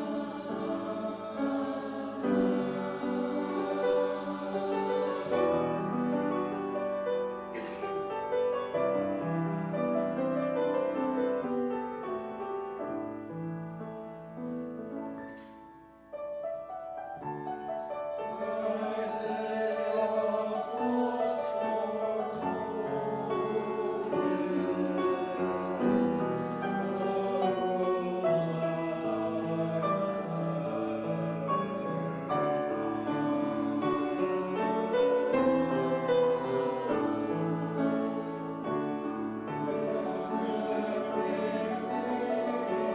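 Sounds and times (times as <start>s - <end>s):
choir singing: 0.0s - 13.8s, 17.2s - 42.9s
piano chords: 0.0s - 42.9s.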